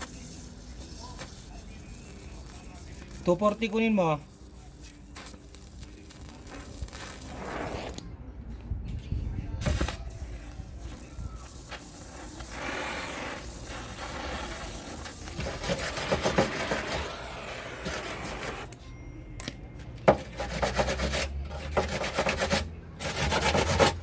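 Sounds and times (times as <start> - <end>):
rasping strokes on hard surface: 10.9 - 18.7, 20.1 - 24.0.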